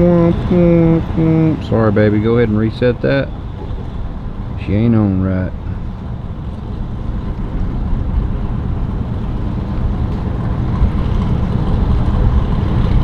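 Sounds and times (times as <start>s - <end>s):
wind noise on microphone: 5.6s - 13.0s.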